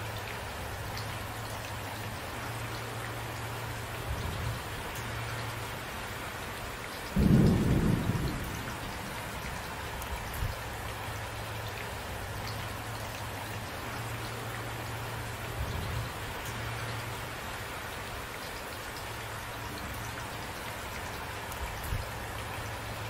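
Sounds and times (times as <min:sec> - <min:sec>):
steady rain: 0:00.0 - 0:23.0
thunder clap: 0:07.2 - 0:09.1.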